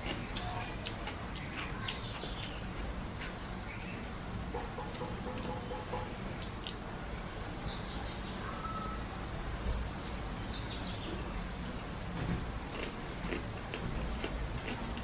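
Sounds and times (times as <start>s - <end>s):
small birds chirping: 0.0s - 9.1s, 9.8s - 12.2s.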